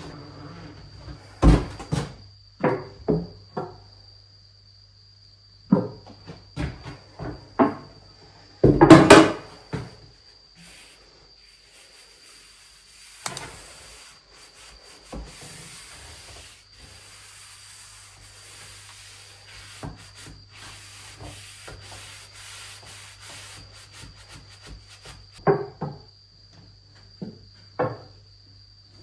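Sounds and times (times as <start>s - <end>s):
sanding rasping rub: 10.6s - 25.4s.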